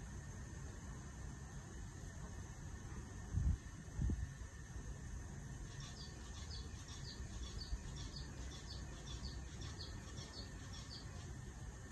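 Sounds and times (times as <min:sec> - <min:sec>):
small bird chirping: 0:05.6 - 0:11.9.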